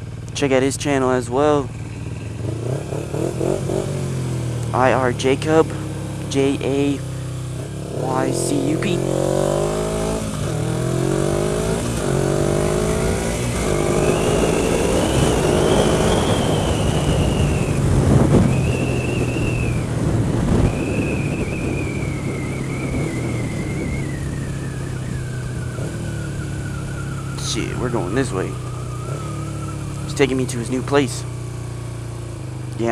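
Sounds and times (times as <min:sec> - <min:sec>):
high whine: 0:00.0 - 0:31.0
motorcycle accelerating: 0:00.0 - 0:32.9
wind rush: 0:12.9 - 0:25.9.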